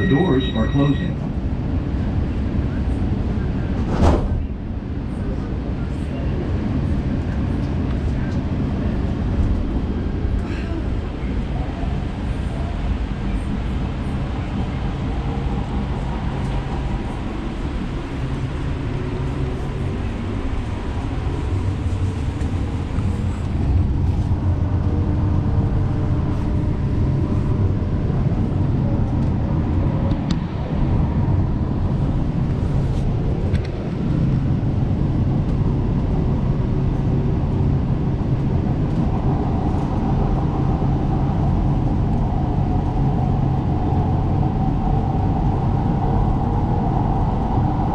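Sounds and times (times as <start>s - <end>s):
train rumbling: 0.0s - 47.9s.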